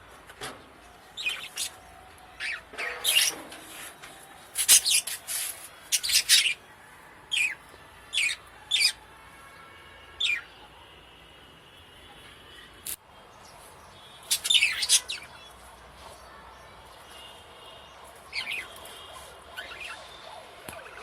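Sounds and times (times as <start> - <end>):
parakeets chirping: 1.2 - 1.8, 5.9 - 6.6, 7.3 - 9.0, 10.2 - 10.5, 14.2 - 15.6, 18.3 - 21.0.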